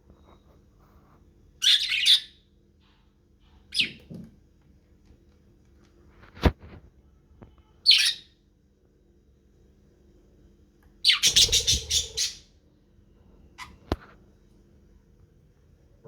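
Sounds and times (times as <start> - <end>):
budgerigars chirping: 11.1 - 12.4.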